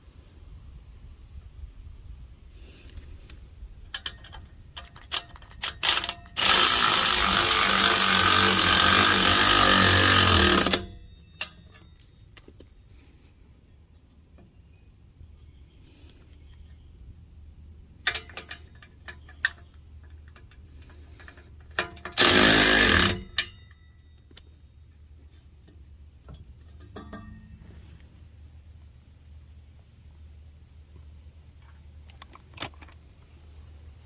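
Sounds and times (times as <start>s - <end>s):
impact wrench hammering: 5.1s - 11.8s, 21.7s - 23.8s.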